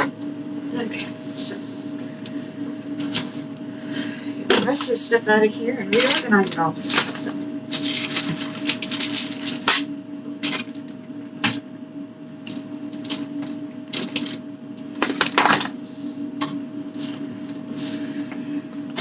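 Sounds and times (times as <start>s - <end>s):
refrigerator low hum: 0.0s - 19.0s
packages rustling: 6.0s - 10.8s.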